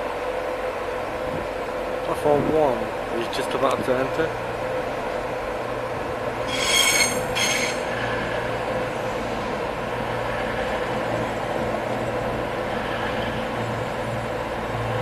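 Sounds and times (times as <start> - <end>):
train rumbling: 0.0 - 15.0
high-pitched wheel squeal: 6.4 - 8.2.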